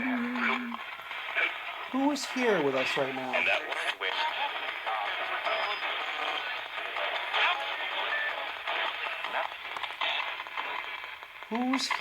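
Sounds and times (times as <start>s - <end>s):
radio static: 0.0s - 12.0s
radio sweeping through stations: 0.0s - 12.0s.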